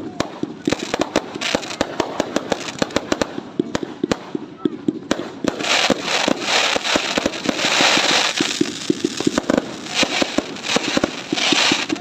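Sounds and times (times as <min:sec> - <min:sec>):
fireworks bangs and pops: 0:00.0 - 0:12.0
crackling hiss: 0:05.1 - 0:12.0.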